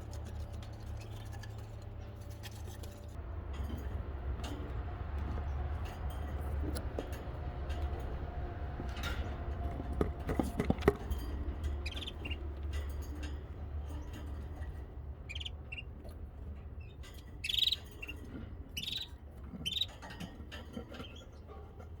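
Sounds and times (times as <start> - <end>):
steady low hum: 0.0 - 22.0
baby birds chirping: 11.8 - 12.5, 15.2 - 16.1, 16.8 - 20.0.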